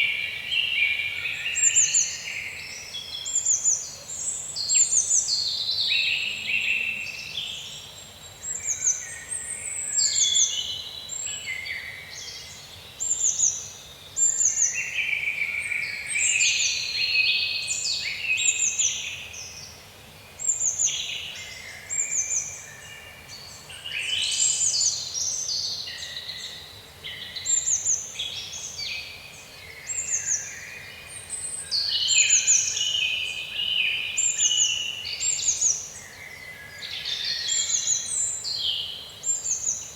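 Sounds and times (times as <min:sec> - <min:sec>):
small birds chirping: 0:20.4 - 0:39.9.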